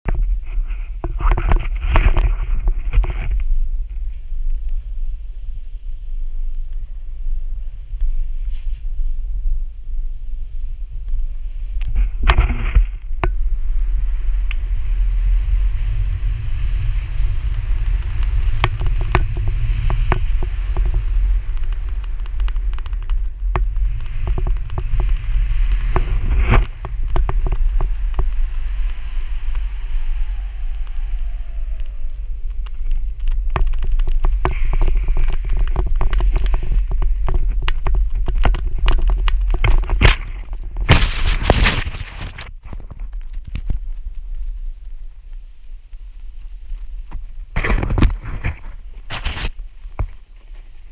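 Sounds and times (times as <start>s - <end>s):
wind buffeting microphone: 0.0s - 50.9s
skis hissing on snow: 13.4s - 33.2s, 40.9s - 42.0s.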